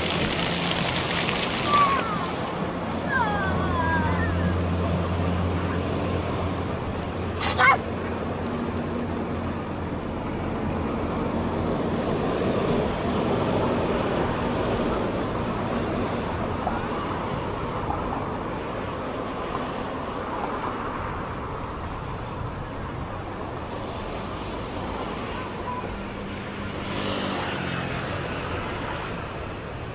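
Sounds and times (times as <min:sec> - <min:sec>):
low engine hum: 0:00.0 - 0:18.8
road traffic passing: 0:00.0 - 0:29.9.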